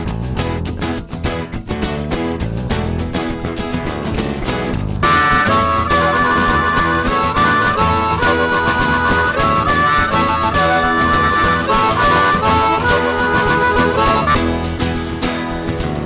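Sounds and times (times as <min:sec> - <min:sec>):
rhythmic accompaniment: 0:00.0 - 0:16.0
harmonica playing lively melody: 0:05.0 - 0:16.0.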